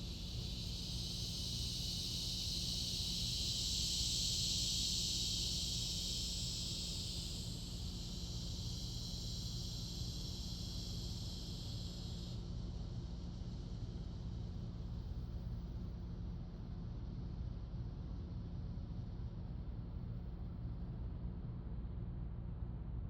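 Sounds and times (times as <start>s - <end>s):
high-pitched insect drone: 0.0s - 12.4s
low steady rumble: 0.0s - 21.9s.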